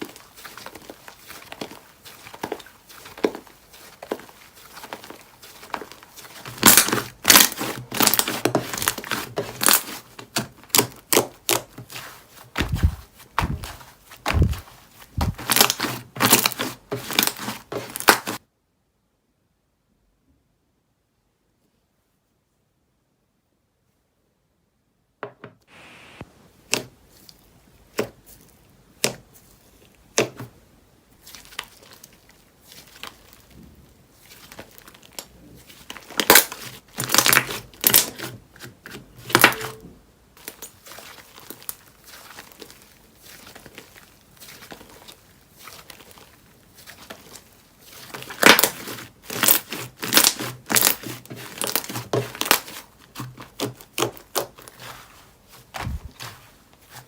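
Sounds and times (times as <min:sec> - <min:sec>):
slime popping and crackling: 0:00.0 - 0:18.4, 0:34.2 - 0:38.3, 0:40.4 - 0:57.0.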